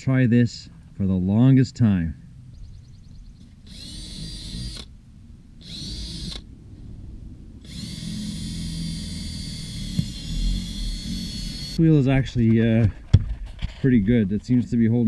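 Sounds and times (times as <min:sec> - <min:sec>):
power drill whining: 0:03.6 - 0:04.9, 0:05.6 - 0:06.5, 0:07.6 - 0:11.8.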